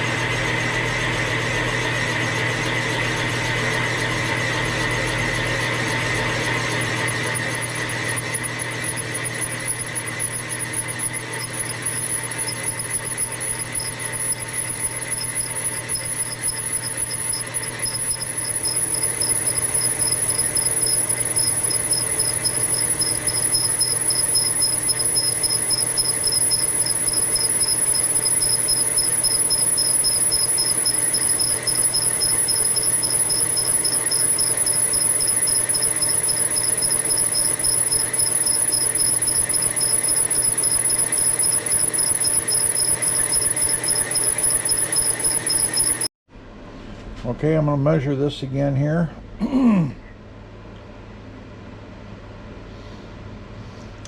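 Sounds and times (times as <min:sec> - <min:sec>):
machine running steadily: 0:00.0 - 0:46.1
cutting tool squealing: 0:04.6 - 0:46.1.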